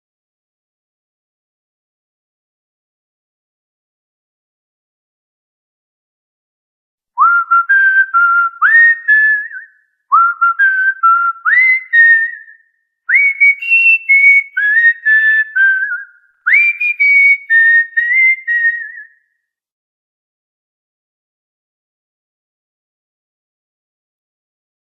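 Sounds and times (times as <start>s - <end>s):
cockatiel whistling a tune: 7.2s - 19.2s.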